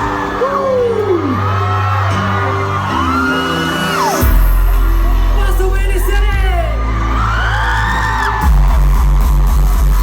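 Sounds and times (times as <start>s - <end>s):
live pop music through sound system: 0.0s - 10.0s
heavy bass line: 8.4s - 10.0s.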